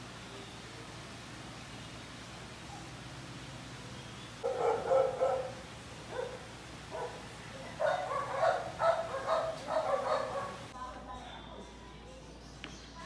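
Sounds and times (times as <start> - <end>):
dog barking: 4.4 - 10.7.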